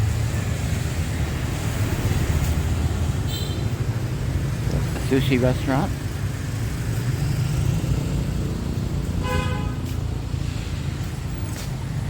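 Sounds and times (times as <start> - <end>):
street traffic: 0.0 - 12.0
vehicle horn toot: 9.2 - 9.9.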